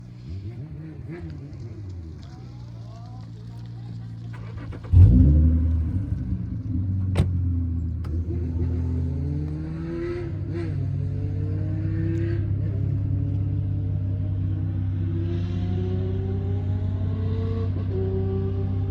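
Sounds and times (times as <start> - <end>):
car engine starting and idling: 0.0 - 10.9.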